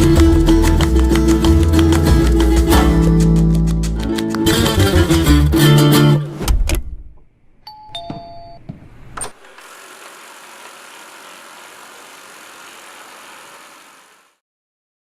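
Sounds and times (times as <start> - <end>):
vacuum fan and brushes hissing: 9.4 - 14.4.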